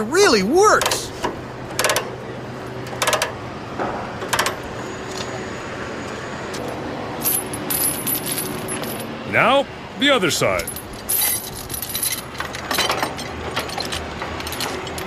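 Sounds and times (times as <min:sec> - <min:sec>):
jingling metal: 0:06.6 - 0:09.1, 0:10.5 - 0:15.0
metal chains clanking: 0:06.6 - 0:09.1, 0:10.5 - 0:15.0.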